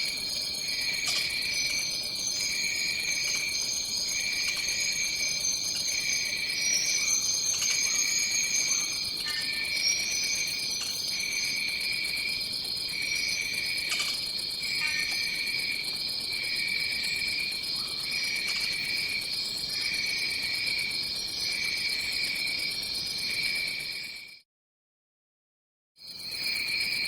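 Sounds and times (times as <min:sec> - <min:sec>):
high-pitched insect drone: 0:00.0 - 0:12.0
lower insect trill: 0:00.0 - 0:24.3.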